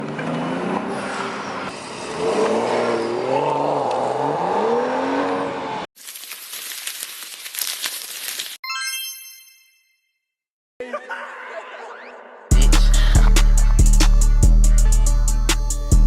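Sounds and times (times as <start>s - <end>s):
harsh hissing crackle: 6.0s - 8.6s.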